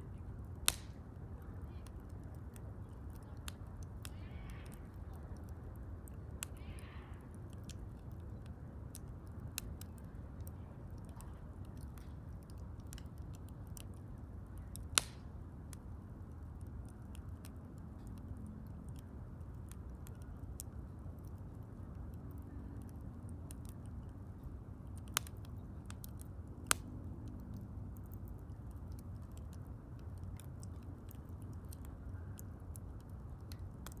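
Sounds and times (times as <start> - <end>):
wood fire crackling: 0.0 - 34.0
loud pops from fire: 0.6 - 1.0, 14.9 - 15.3.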